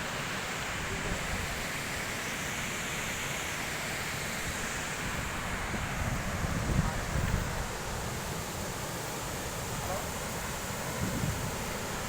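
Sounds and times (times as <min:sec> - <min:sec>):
wind buffeting microphone: 0:10.9 - 0:11.6.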